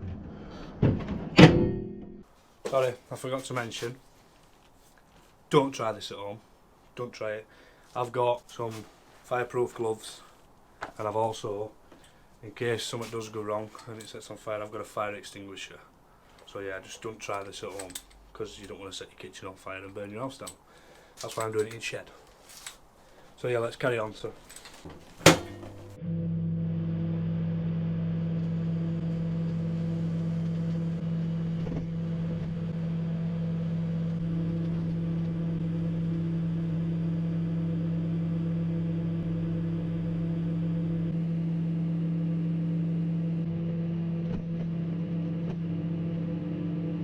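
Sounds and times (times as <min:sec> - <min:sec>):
microwave click: 0:24.8 - 0:26.0
microwave oven humming: 0:24.9 - 0:47.0.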